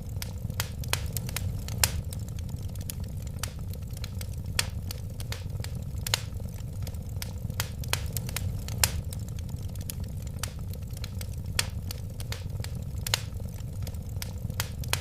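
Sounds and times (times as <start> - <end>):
low rumble of flames: 0.0 - 15.0
sharp pops of burning wood: 0.0 - 15.0
wood fire crackling: 0.0 - 15.0.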